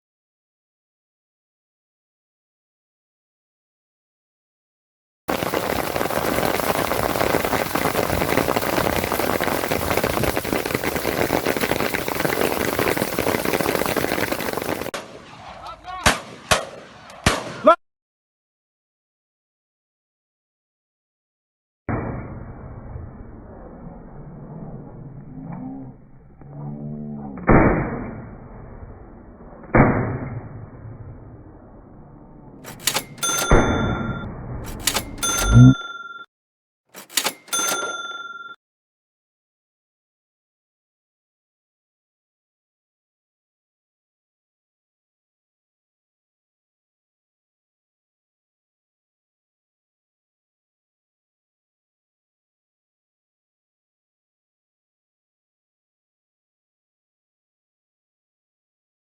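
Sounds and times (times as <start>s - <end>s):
steady rain falling: 5.3s - 14.9s
shotgun shots: 14.8s - 17.7s.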